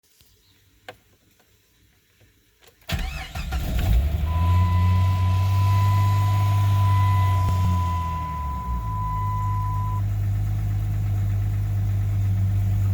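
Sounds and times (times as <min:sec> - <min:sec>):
car engine cranking and idling: 0:02.8 - 0:12.9
steady high tone: 0:04.3 - 0:10.0.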